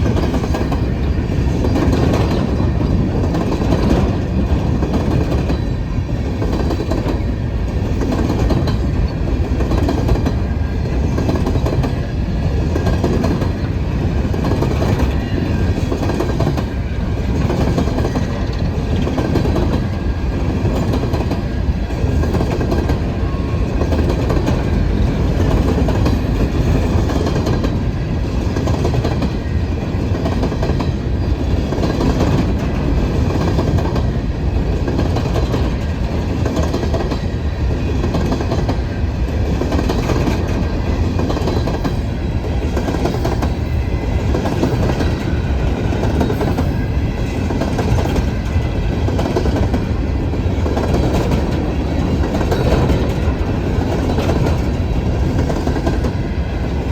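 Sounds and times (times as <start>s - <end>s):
wheels clacking over rail joints: 0.0s - 56.2s
freight train rumbling past: 0.0s - 56.9s.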